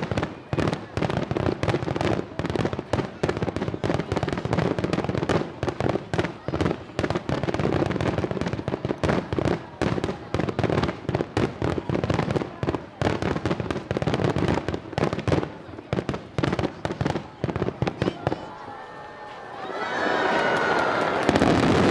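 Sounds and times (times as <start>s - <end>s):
fireworks bursts and crackling: 0.0s - 19.4s, 20.0s - 21.9s.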